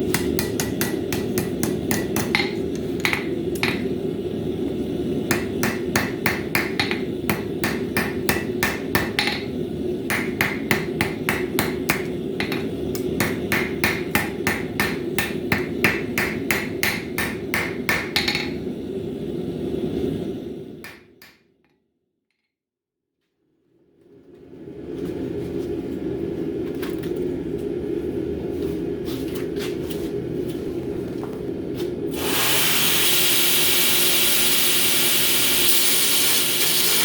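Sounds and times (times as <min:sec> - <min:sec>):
hammer striking steel on anvil: 0:00.0 - 0:04.0, 0:05.3 - 0:18.6, 0:20.8 - 0:21.4
steady low hum: 0:00.0 - 0:20.9.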